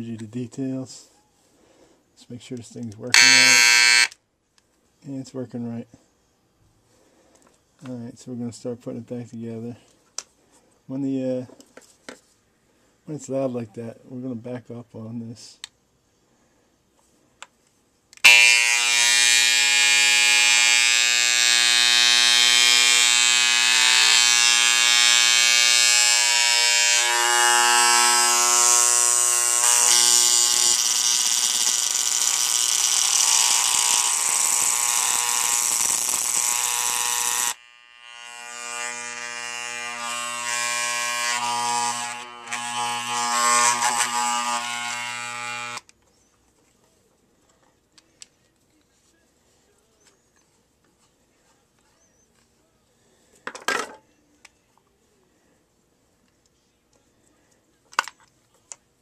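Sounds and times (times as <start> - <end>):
electric hair clipper buzzing: 3.1 - 4.2, 18.2 - 45.9.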